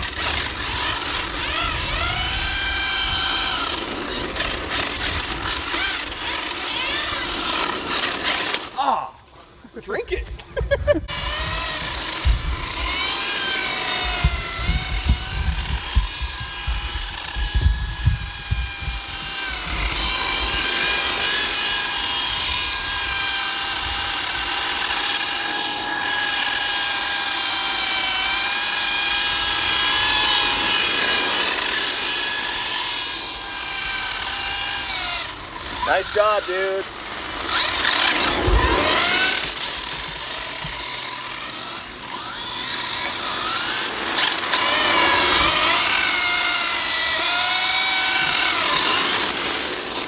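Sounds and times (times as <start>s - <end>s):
electric motor whine: 0.0s - 8.8s, 11.0s - 50.0s
wind rumble on microphone: 14.0s - 20.0s.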